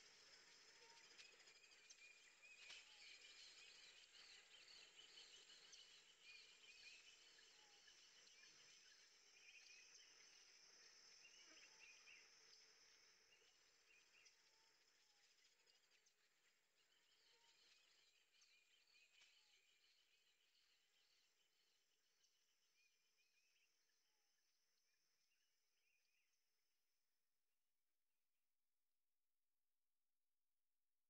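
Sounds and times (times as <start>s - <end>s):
faint high chirping: 0.0s - 24.2s.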